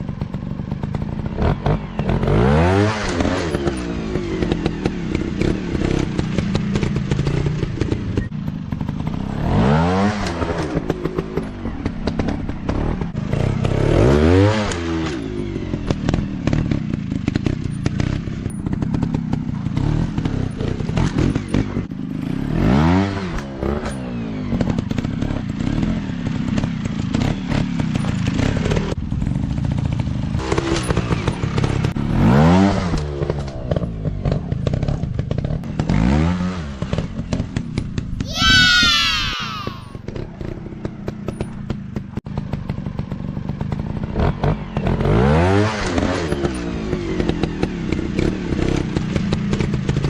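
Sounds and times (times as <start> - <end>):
dirt bike engines revving: 38.0 - 41.7.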